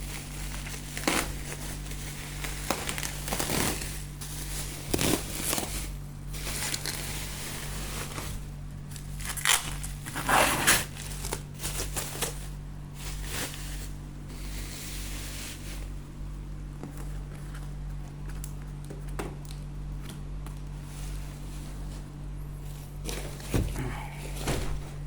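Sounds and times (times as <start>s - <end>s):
plastic wrap crinkling: 0.0s - 14.7s
steady low hum: 0.0s - 25.0s.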